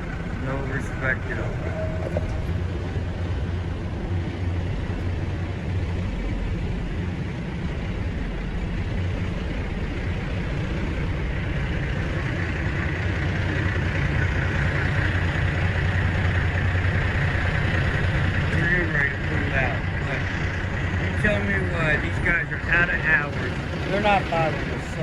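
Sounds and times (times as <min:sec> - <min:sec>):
diesel truck engine idling: 0:00.0 - 0:25.0.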